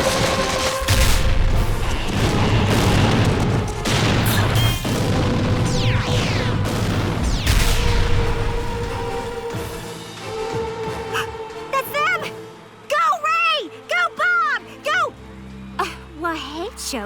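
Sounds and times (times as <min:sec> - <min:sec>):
sharp impacts: 0:00.0 - 0:09.6
dramatic music score: 0:00.0 - 0:17.0.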